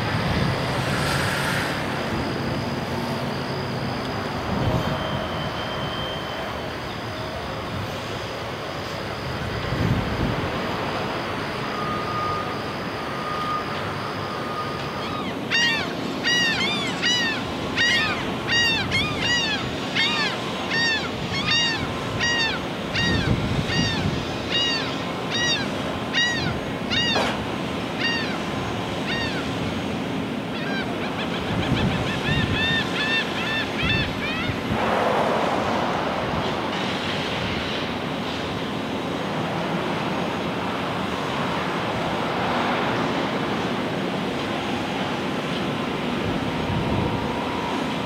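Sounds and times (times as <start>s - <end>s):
low machinery hum: 0.0s - 48.0s
steady outdoor noise: 0.0s - 48.0s
bird calling: 14.9s - 29.6s, 30.5s - 34.6s.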